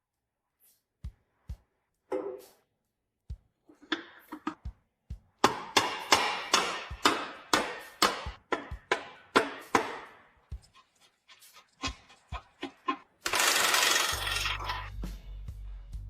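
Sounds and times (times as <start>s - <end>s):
music: 0.0s - 16.0s
sharp hammer-like strikes: 5.4s - 10.2s.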